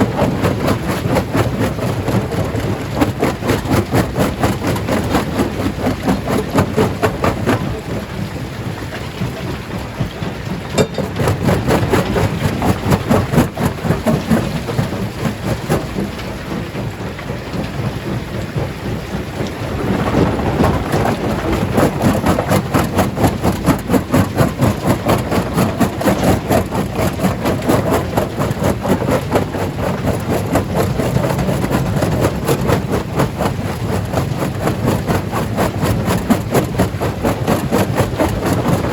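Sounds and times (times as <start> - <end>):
stone crusher rumbling: 9.8 - 18.5, 19.1 - 38.9.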